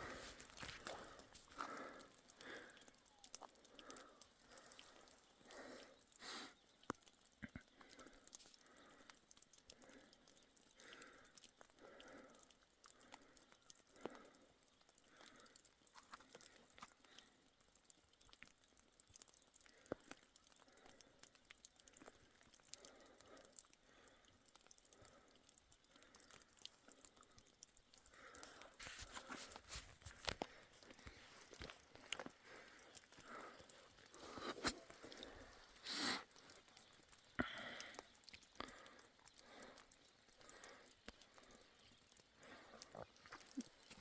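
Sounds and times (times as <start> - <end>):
faint crunching and rustling: 0.0 - 5.5, 14.9 - 20.6, 26.2 - 44.0.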